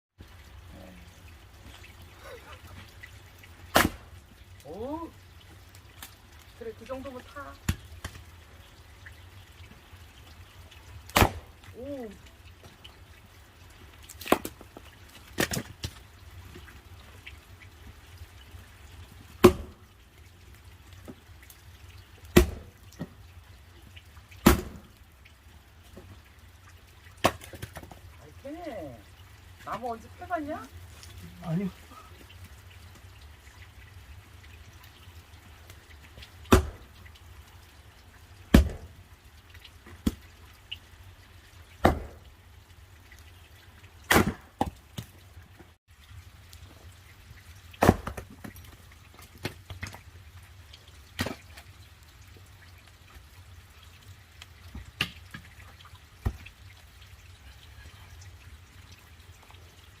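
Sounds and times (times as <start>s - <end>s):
axe splitting firewood: 3.7s - 4.1s, 11.1s - 11.5s, 22.3s - 22.7s, 36.5s - 36.8s, 38.5s - 38.9s, 41.8s - 42.2s, 44.1s - 44.8s, 47.8s - 48.6s.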